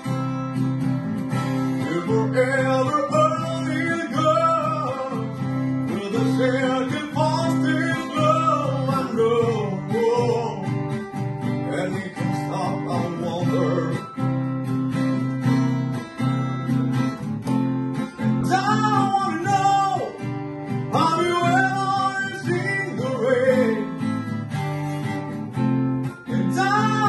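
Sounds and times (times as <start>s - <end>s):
acoustic guitar strumming: 0.0s - 27.0s
person singing: 1.6s - 10.9s, 11.6s - 14.2s, 18.1s - 24.3s, 26.1s - 27.0s.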